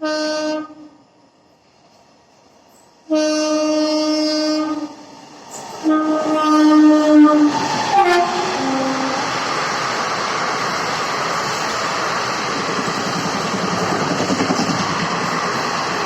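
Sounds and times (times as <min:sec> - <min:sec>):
train horn blasts: 0:00.0 - 0:01.0, 0:03.1 - 0:05.0, 0:05.8 - 0:09.2
train rushing past: 0:01.1 - 0:16.0.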